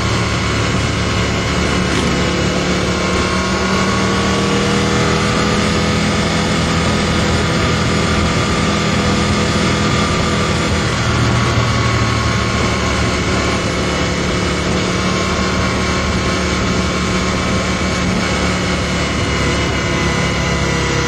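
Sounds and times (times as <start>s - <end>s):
rushing noise: 0.0s - 16.6s
motorcycle engine running: 0.0s - 21.0s.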